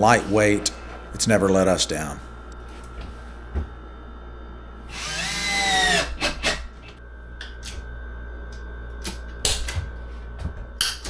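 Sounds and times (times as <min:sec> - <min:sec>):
power drill whine: 0:04.8 - 0:07.0.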